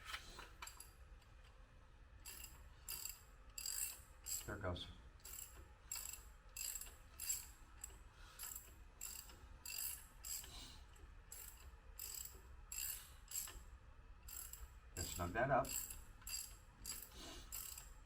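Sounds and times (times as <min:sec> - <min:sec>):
ratchet wrench clicking: 0:02.3 - 0:04.5, 0:05.2 - 0:10.6, 0:11.3 - 0:13.6, 0:14.2 - 0:18.0.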